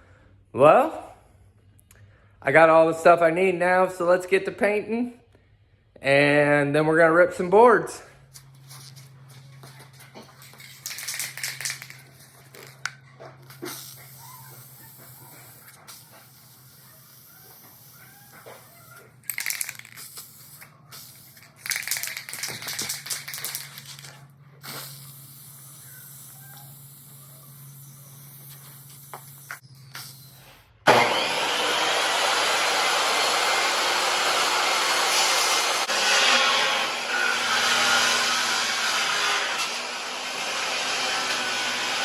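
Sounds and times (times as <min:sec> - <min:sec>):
handling clicks and knocks: 0:21.5 - 0:24.2
power saw ripping board: 0:30.9 - 0:42.0.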